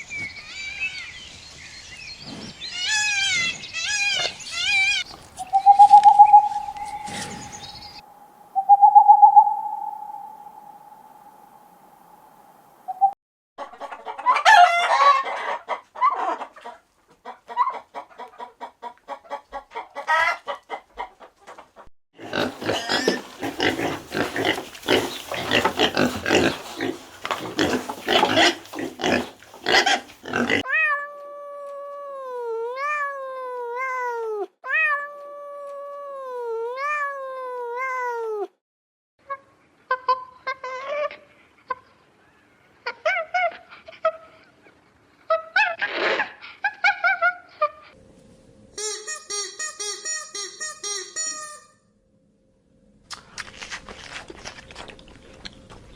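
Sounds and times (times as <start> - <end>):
farm animal calls: 2.6 - 8.0, 22.2 - 30.7.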